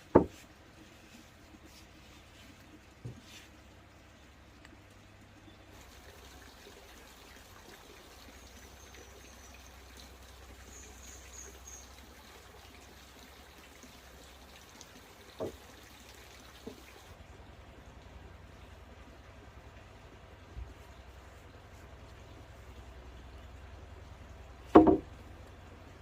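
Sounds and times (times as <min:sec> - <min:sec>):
faint trickling water: 0:00.0 - 0:26.0
thump: 0:00.1 - 0:00.4, 0:24.7 - 0:25.0.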